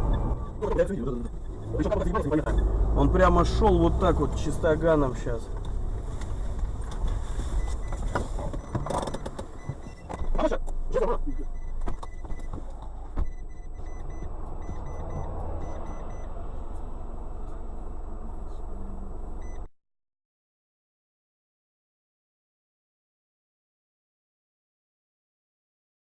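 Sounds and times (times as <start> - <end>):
car road and engine rumble: 0.0 - 19.7
faint repeated beeping: 7.6 - 16.4.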